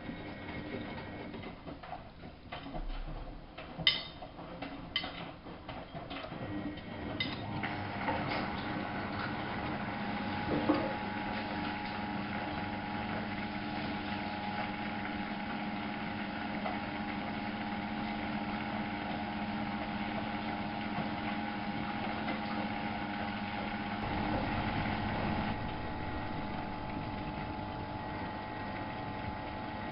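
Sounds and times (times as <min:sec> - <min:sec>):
washing machine motor hum: 0:00.0 - 0:29.9
deep rumble: 0:24.0 - 0:28.4.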